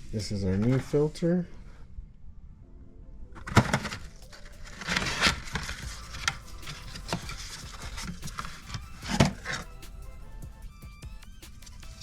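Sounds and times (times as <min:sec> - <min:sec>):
rubbing and scraping: 0:03.4 - 0:09.9
parts knocking and clicking: 0:03.5 - 0:09.7.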